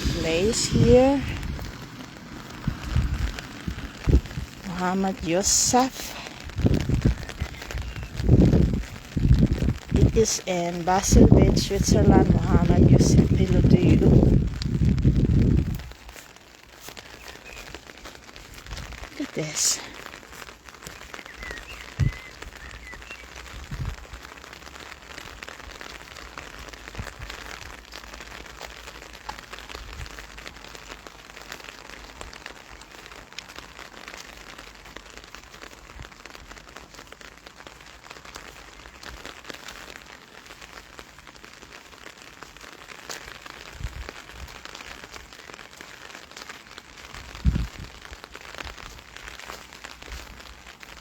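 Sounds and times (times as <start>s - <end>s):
low thumps: 0.0s - 4.8s
rain pattering: 0.0s - 51.0s.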